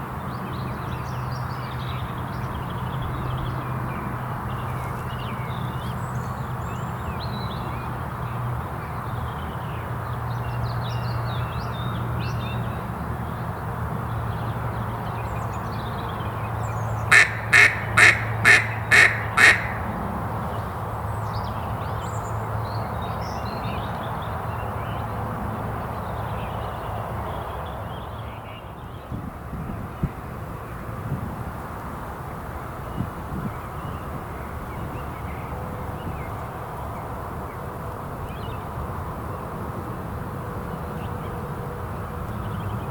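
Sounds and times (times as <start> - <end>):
faint songbird calls: 16.1 - 20.7
duck quacking: 17.1 - 20.0.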